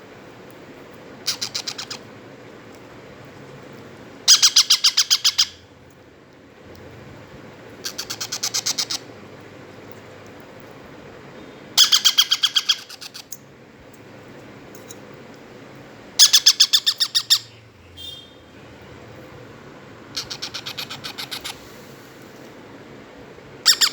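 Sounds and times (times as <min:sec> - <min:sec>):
parrot chicks begging calls: 0:01.2 - 0:02.1, 0:04.2 - 0:05.7, 0:07.7 - 0:09.2, 0:11.7 - 0:13.3, 0:16.2 - 0:19.2, 0:20.0 - 0:21.8, 0:23.6 - 0:23.9.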